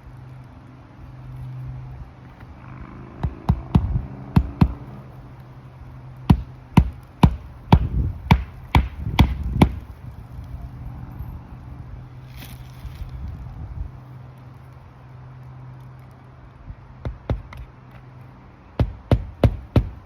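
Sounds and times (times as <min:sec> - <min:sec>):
steady low hum: 0:00.0 - 0:20.0
hammer striking nails: 0:06.3 - 0:09.8, 0:18.8 - 0:20.0.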